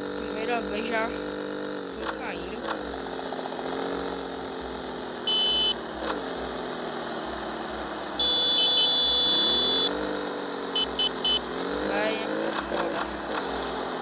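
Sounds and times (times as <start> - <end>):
motorcycle engine running: 0.0 - 14.0
high electronic tone: 5.2 - 5.8, 8.2 - 10.0.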